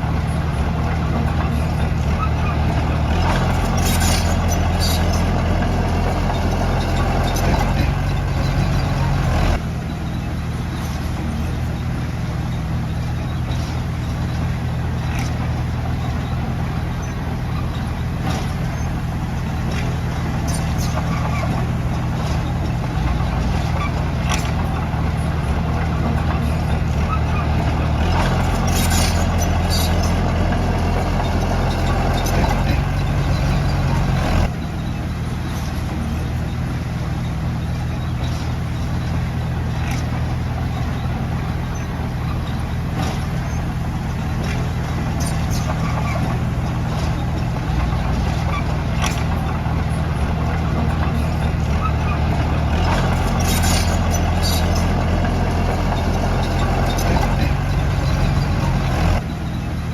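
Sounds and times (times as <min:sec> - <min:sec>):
heavy diesel engine drone: 0:00.0 - 0:59.9.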